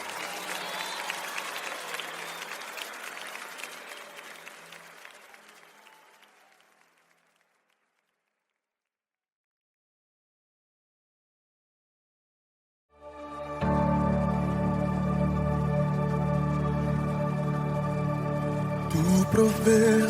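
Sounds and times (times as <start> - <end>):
audience applauding: 0.0 - 8.6, 13.1 - 20.0.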